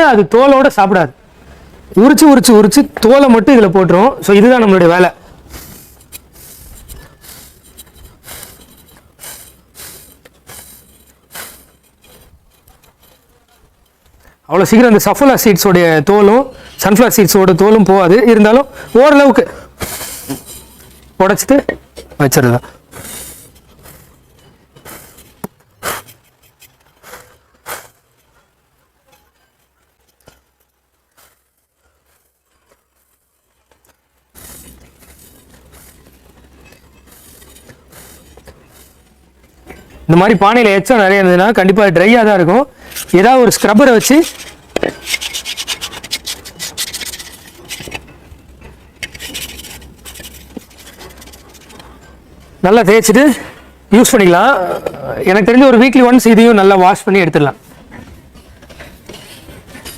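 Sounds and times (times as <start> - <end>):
seed husks rustling and scraping: 1.8 - 59.9
scrubber rasping on clay pot: 5.3 - 14.1, 16.1 - 53.3
clay pots tapping and knocking: 20.3 - 31.2, 42.9 - 52.6.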